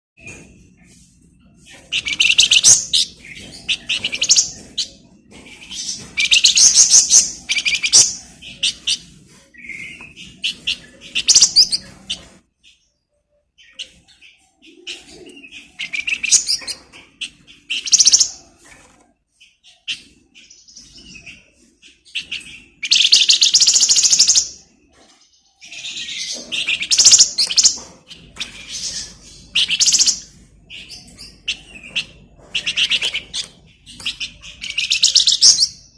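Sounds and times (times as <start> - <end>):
songbird chattering trills: 25.7 - 35.9.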